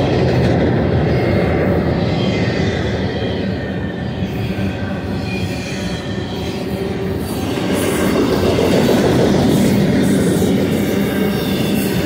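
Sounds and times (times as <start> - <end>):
train wheels rumbling on rail: 0.0 - 12.0
thin whine: 2.8 - 12.0.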